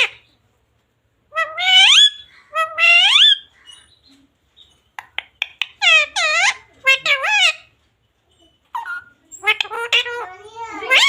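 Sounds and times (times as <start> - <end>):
parrot calling: 0.0 - 0.4, 1.3 - 4.1, 5.0 - 7.8, 8.6 - 11.0.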